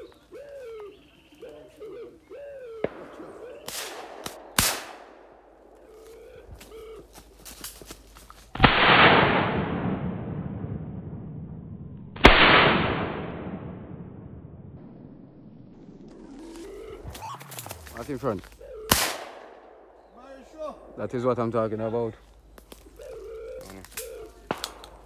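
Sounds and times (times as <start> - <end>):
bird cooing: 0.0 - 4.5, 5.1 - 8.4, 16.6 - 25.0
shotgun shots with echo: 2.8 - 5.6, 8.6 - 10.0, 12.2 - 13.6, 18.2 - 20.0, 23.9 - 25.0
sharp cracks and clicks: 2.9 - 5.8, 23.6 - 25.0.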